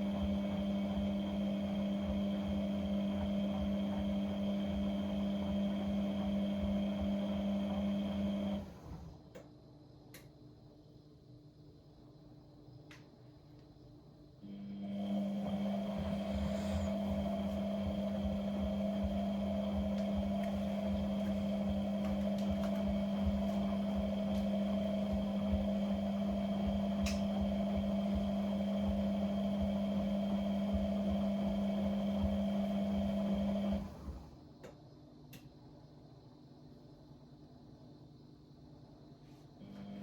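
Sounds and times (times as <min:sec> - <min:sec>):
electric motor humming: 0:00.0 - 0:08.9, 0:14.6 - 0:34.3.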